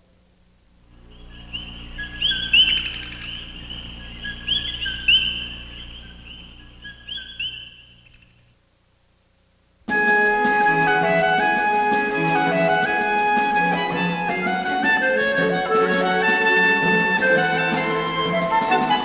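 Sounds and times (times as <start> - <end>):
faint low hum: 0.0 - 9.9
birds singing: 0.9 - 8.5.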